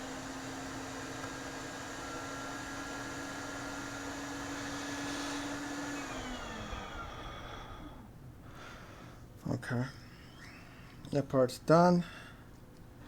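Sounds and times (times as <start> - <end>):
blower whine winding down: 0.0 - 8.2, 10.1 - 10.9.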